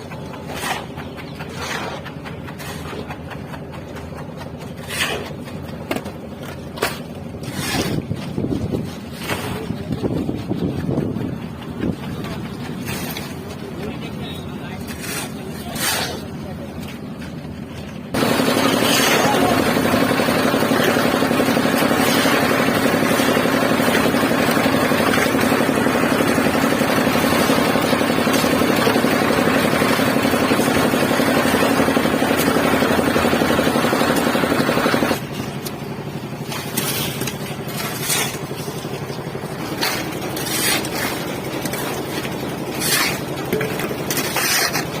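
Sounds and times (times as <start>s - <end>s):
scrapes and knocks: 0.0s - 13.7s, 36.4s - 45.0s
motor running: 18.1s - 35.5s.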